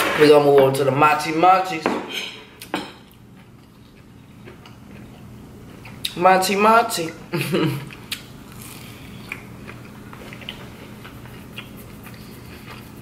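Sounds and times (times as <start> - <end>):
mouth chewing clicks and smacks: 7.9 - 13.0.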